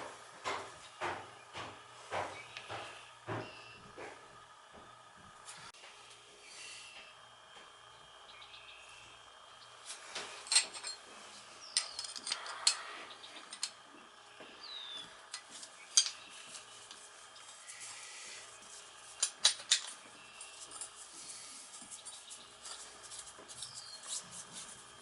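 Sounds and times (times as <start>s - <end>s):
metal tools clinking: 10.4s - 12.8s, 13.4s - 13.8s, 15.3s - 16.3s, 19.2s - 21.0s.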